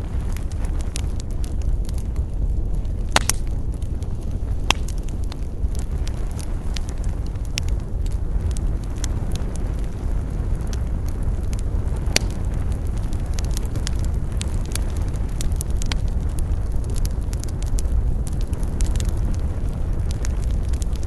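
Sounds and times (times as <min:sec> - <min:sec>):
burning wood crackling and popping: 0:00.0 - 0:21.0
campfire flames rumbling: 0:00.0 - 0:21.0.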